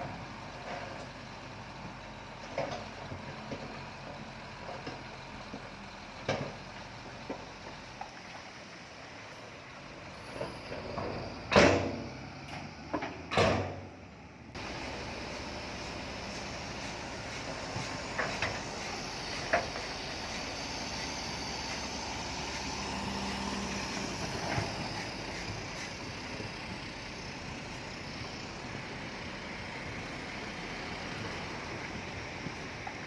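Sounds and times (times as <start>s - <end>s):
heavy machinery running: 14.6s - 33.0s.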